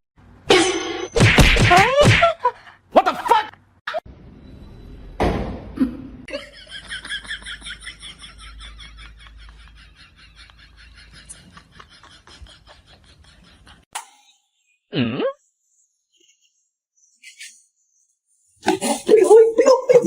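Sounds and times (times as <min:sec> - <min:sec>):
thump: 0:05.2 - 0:05.7.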